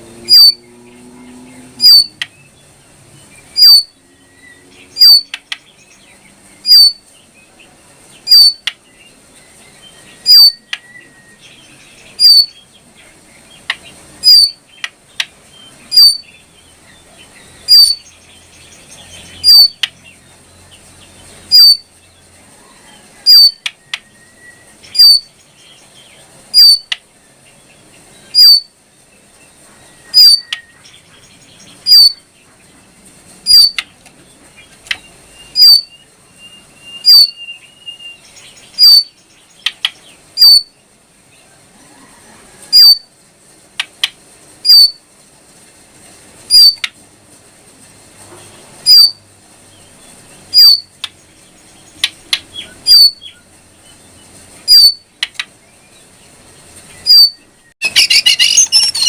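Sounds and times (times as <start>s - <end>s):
songbird sharp chirps: 0.2s - 22.2s, 23.3s - 32.6s, 33.5s - 34.0s, 34.6s - 40.8s, 49.8s - 59.0s
bird thin whistle: 30.0s - 30.8s, 57.1s - 59.0s.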